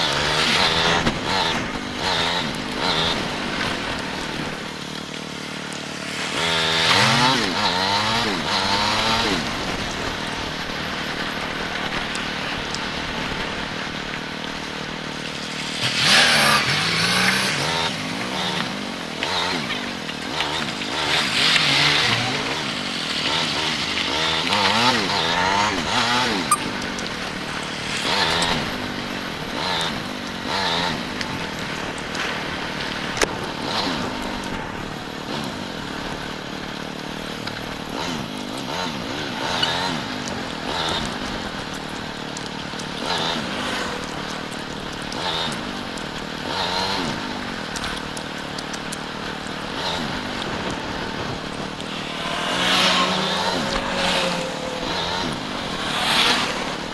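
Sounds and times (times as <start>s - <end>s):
steady rushing noise: 0.0s - 18.2s, 20.2s - 33.7s, 49.4s - 56.9s
motorcycle engine revving: 0.0s - 56.9s.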